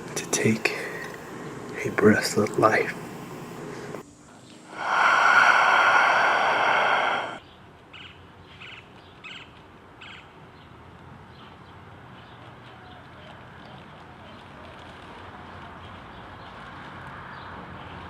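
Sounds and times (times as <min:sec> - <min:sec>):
person gasping breath: 0:04.7 - 0:07.4.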